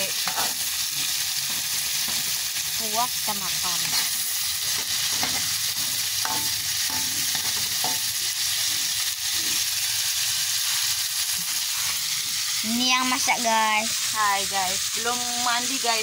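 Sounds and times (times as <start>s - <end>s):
shrimp sizzling in oil: 0.0s - 16.0s
metal spatula scraping a pan: 0.1s - 2.4s, 3.6s - 9.7s.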